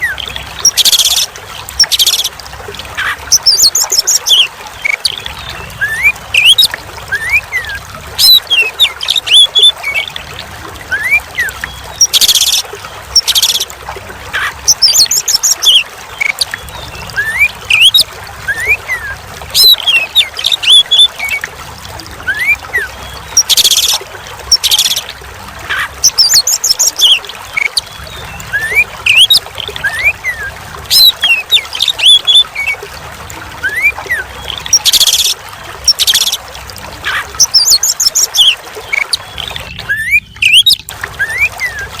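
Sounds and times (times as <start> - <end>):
running water: 0.0 - 42.0
bird singing whistled phrases: 16.8 - 21.1, 26.0 - 32.5, 33.6 - 36.4, 37.1 - 41.9.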